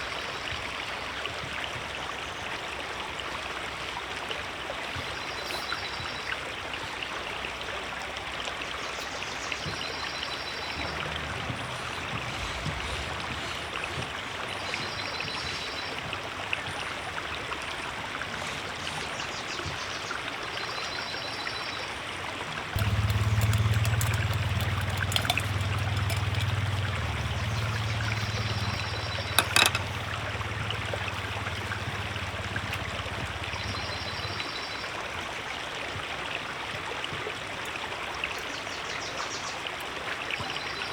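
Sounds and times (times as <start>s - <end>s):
river water flowing: 0.0s - 40.9s
low rumble: 10.8s - 15.0s, 22.8s - 34.4s.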